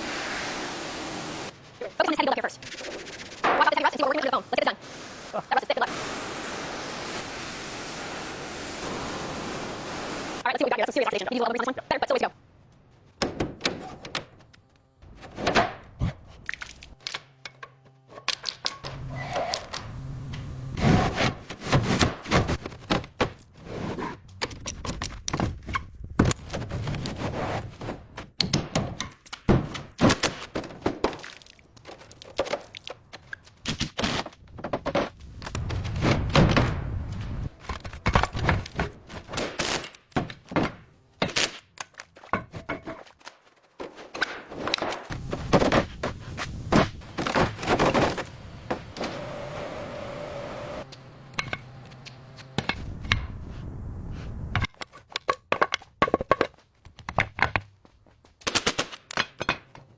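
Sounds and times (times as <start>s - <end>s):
irregular knocks and thuds: 34.4s - 39.3s.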